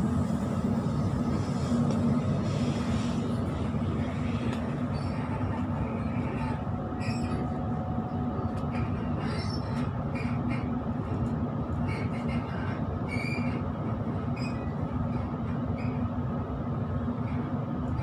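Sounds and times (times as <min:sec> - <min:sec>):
train wheels rumbling: 0:00.0 - 0:18.0
high-pitched wheel squeals: 0:06.4 - 0:07.6, 0:11.8 - 0:13.6, 0:14.3 - 0:14.8.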